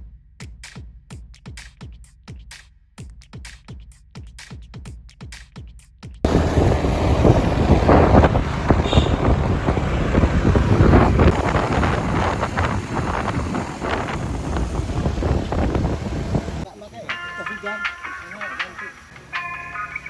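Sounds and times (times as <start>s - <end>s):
wind buffeting microphone: 6.3s - 16.7s.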